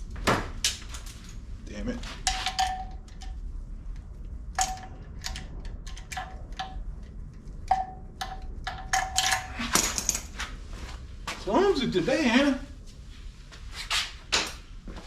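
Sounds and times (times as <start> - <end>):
metal bolts clinking: 2.0 - 3.4, 4.6 - 10.3.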